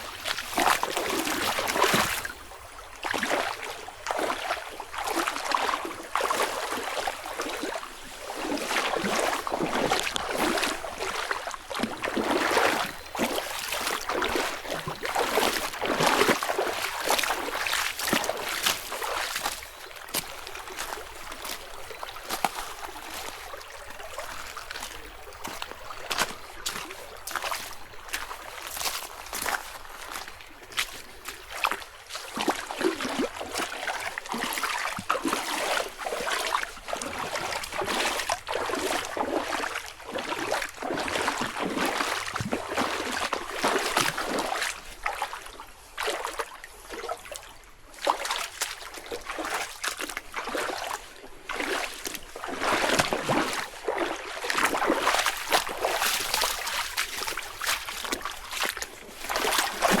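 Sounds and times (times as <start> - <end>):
footsteps crunching through leaves: 11.9 - 33.1, 51.9 - 60.0.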